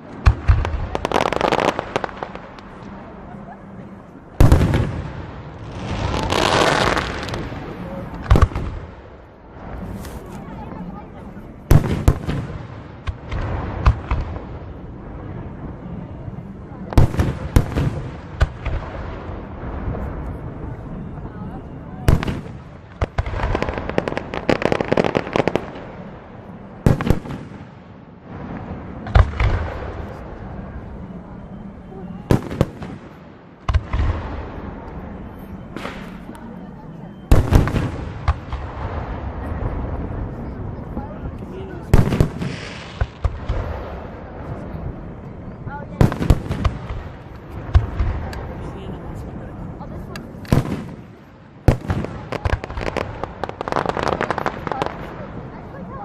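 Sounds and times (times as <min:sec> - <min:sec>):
firework booms: 0:00.1 - 0:02.6, 0:04.4 - 0:10.3, 0:11.7 - 0:14.7, 0:16.9 - 0:20.7, 0:26.8 - 0:30.3, 0:32.3 - 0:34.8, 0:37.3 - 0:45.2, 0:45.9 - 0:49.3, 0:50.3 - 0:55.4.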